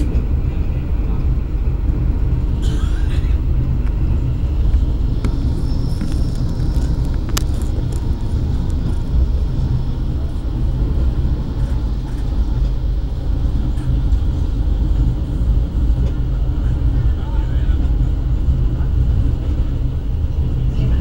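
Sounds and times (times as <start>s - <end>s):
train rumbling from inside coach: 0.0s - 21.0s.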